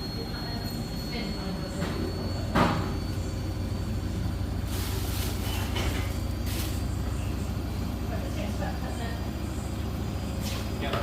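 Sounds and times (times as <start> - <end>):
washing machine drum throbbing hum: 0.0 - 11.0.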